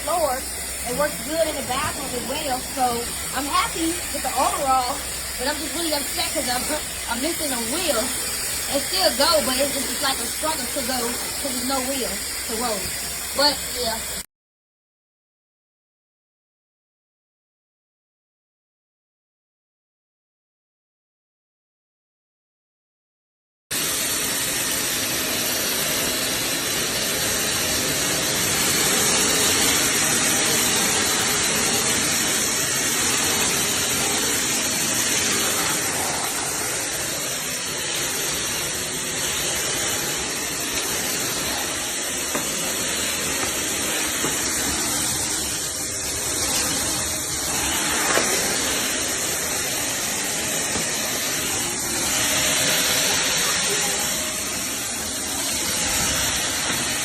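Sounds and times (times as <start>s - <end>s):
vacuum cleaner running: 0.0s - 14.2s, 23.7s - 57.0s.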